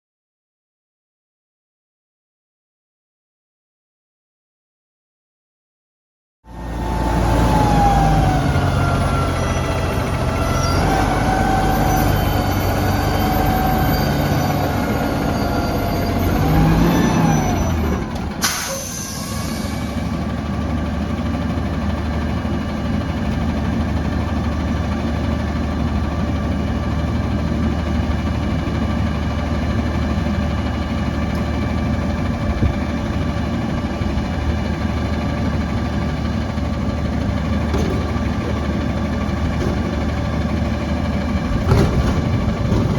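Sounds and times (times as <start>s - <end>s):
diesel truck engine running: 6.5s - 42.9s
air brake hiss: 18.4s - 20.0s.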